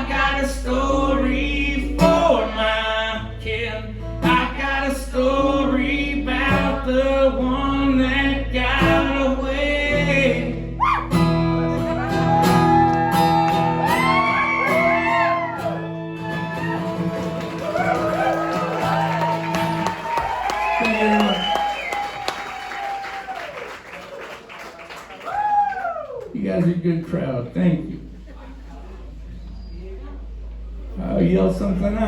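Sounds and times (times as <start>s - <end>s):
man singing: 0.0s - 10.8s
country-rock band playing: 8.8s - 20.1s.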